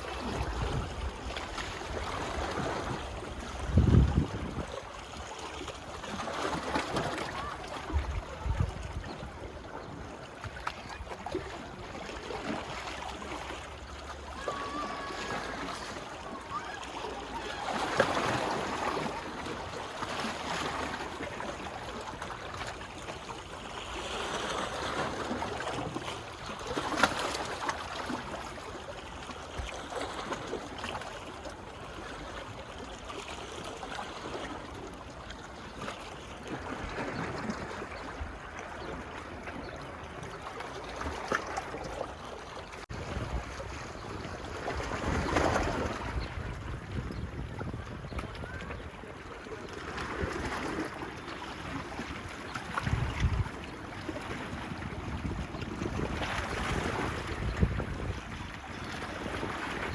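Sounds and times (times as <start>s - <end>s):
small waves lapping on shore: 0.0s - 59.9s
water splashes: 0.0s - 59.9s.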